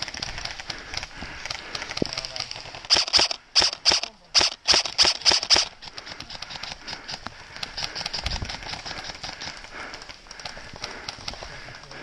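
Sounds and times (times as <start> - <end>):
airsoft rifle shots: 0.0 - 6.3
running footsteps through undergrowth: 0.0 - 12.0.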